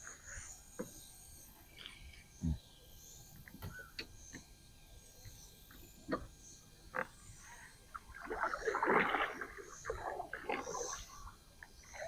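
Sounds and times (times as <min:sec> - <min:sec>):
water splashing around a kayak: 0:07.9 - 0:12.0.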